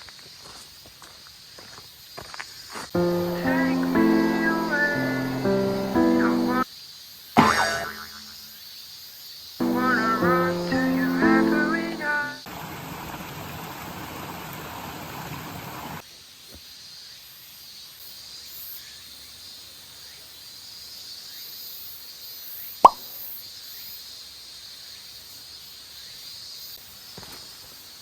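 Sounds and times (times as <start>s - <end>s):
insect drone: 1.6s - 11.6s.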